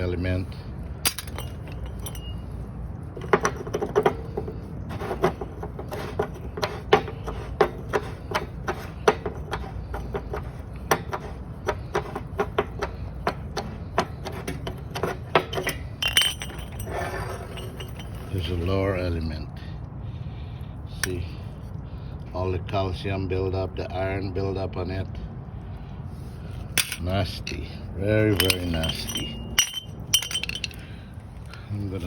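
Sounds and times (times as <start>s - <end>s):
metal tools clicking and tapping: 1.0s - 2.4s, 5.1s - 18.4s, 26.8s - 31.7s.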